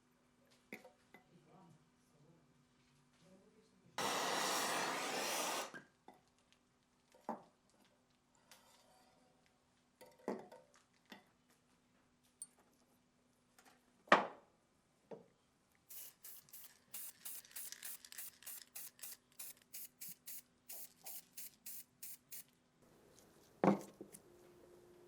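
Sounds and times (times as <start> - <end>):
short hissing sprays: 4.0 - 5.8, 15.9 - 22.5.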